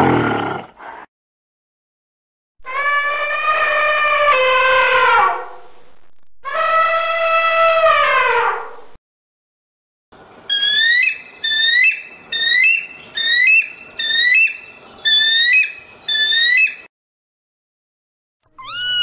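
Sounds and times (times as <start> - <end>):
animal whistled calls: 10.5 - 16.9, 18.6 - 19.0.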